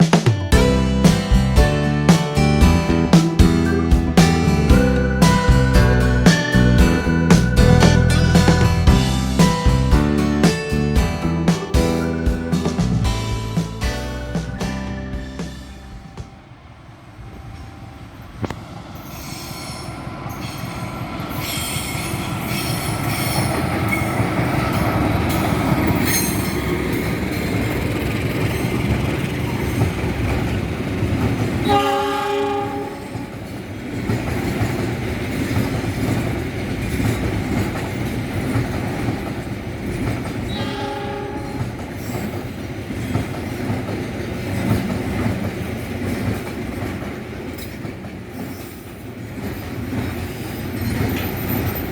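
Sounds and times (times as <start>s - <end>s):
train wheels rumbling on rails: 0.0s - 51.9s
train horn blasts: 31.6s - 33.4s, 40.5s - 41.8s.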